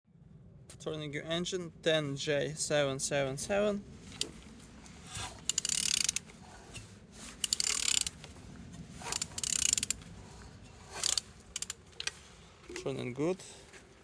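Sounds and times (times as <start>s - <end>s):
ratchet wrench clicking: 5.5s - 6.2s, 7.4s - 8.1s, 9.1s - 10.0s, 11.0s - 11.8s.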